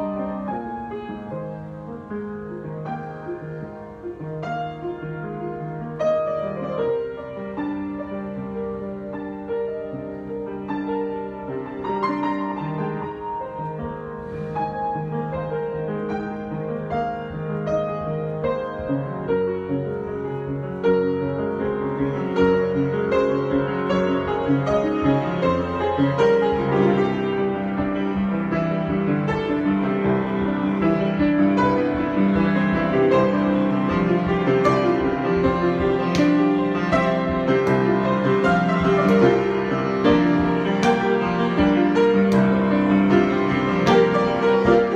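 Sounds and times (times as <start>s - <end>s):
solo piano improvisation: 0.0s - 44.9s.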